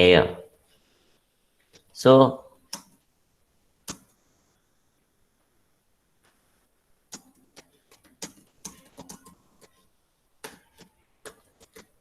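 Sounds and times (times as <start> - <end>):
keyboard typing clicks: 7.1 - 9.8.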